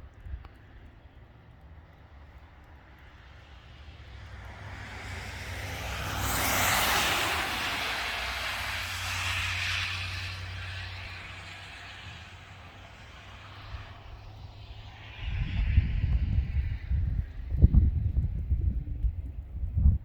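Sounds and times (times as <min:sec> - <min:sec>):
vehicle passing by: 0:03.2 - 0:18.2.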